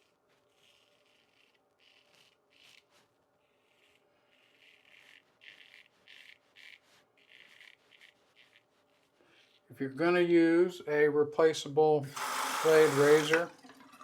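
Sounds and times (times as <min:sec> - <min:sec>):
razor scraping stubble: 0:00.0 - 0:09.8, 0:12.1 - 0:13.5.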